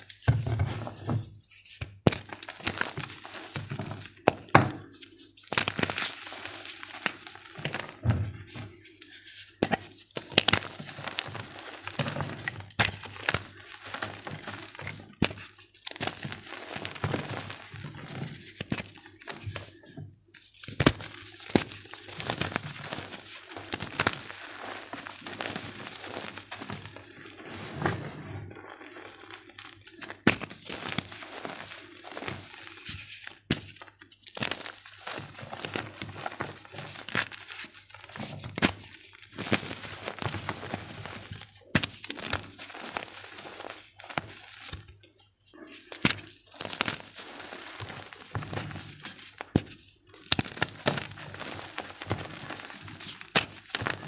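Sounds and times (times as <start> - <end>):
chalk crunching and crumbling: 20.5 - 38.3, 45.4 - 54.0.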